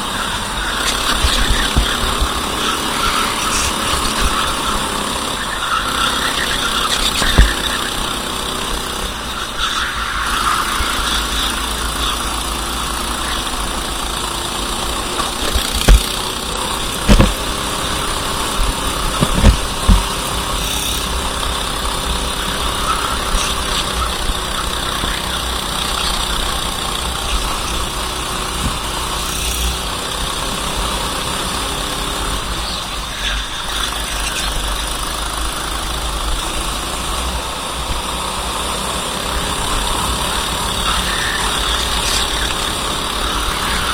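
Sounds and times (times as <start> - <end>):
racing kart engine: 0.0 - 43.9
sharp thumps: 14.8 - 20.6.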